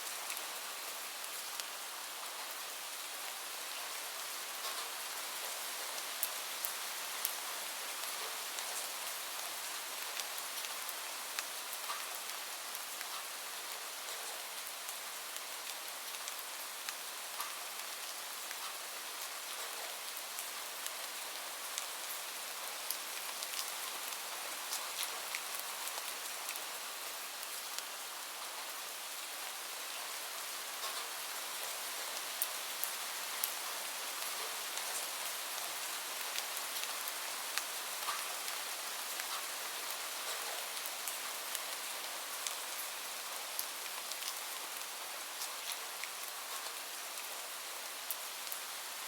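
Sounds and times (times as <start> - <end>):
gentle rain hiss: 0.0 - 49.0.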